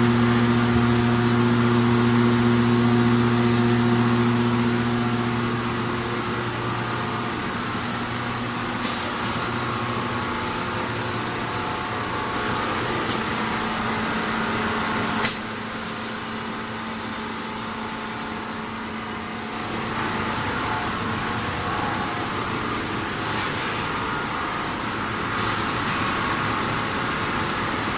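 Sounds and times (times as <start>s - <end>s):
machine motor hum: 0.0s - 27.9s
sharp click: 15.2s - 15.5s.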